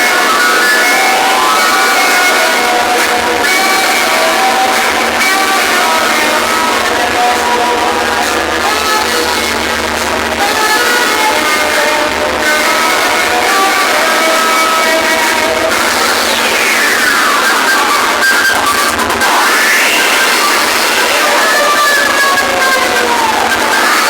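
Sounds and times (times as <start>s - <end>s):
loud distorted music from speakers: 0.0s - 24.0s.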